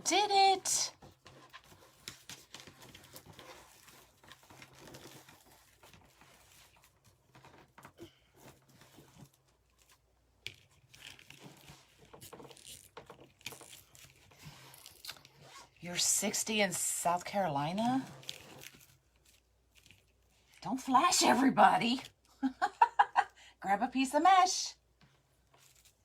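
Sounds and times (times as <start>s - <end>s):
mesh rustling and crinkling: 1.0s - 15.8s, 17.7s - 20.6s, 25.4s - 26.0s
small clicks and scrapes: 1.0s - 15.8s, 18.0s - 20.7s.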